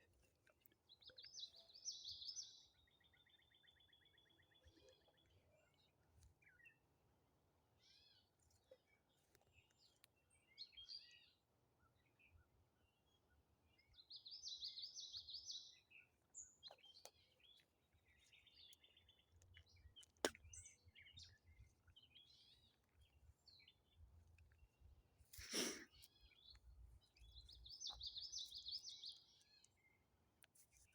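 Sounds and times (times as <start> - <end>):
birds chirping: 25.4 - 30.0.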